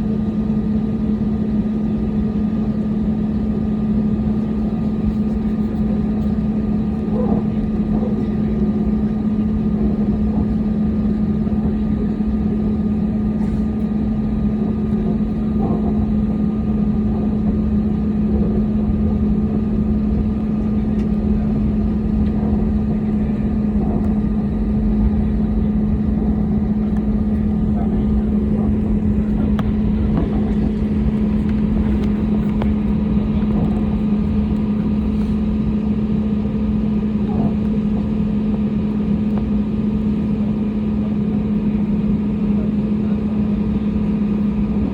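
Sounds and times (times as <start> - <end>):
jet airliner cabin rumble: 0.0 - 44.9.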